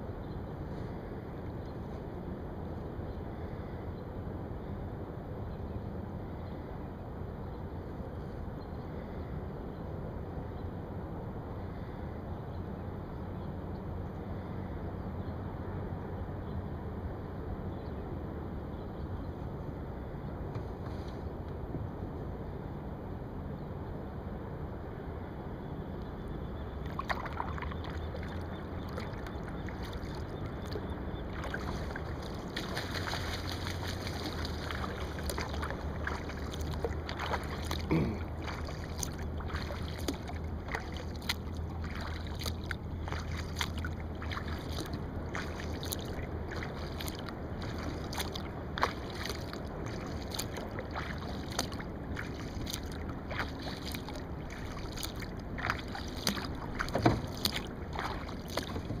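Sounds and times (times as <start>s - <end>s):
steady low hum: 0.0s - 59.0s
paddle strokes splashing in water: 26.8s - 59.0s
water drips and splashes: 26.8s - 59.0s.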